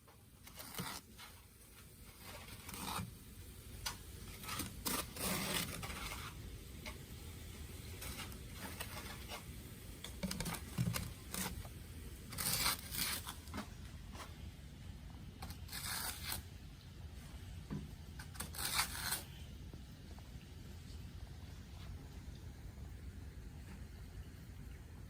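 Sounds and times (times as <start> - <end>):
scraping rustling noises: 0.4 - 3.2, 3.9 - 7.1, 7.7 - 14.5, 15.4 - 16.5, 18.2 - 19.4.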